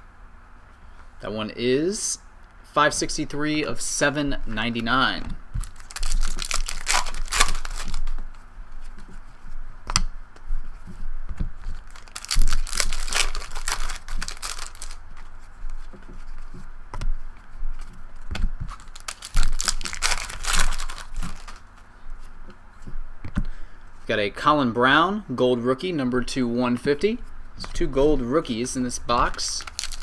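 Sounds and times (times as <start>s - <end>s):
cards being handled: 4.7s - 9.3s, 10.7s - 17.0s, 17.8s - 21.9s, 28.6s - 30.0s
card pack wrapper tearing and crinkling: 5.6s - 8.2s, 11.7s - 15.0s, 18.6s - 21.6s, 29.2s - 30.0s.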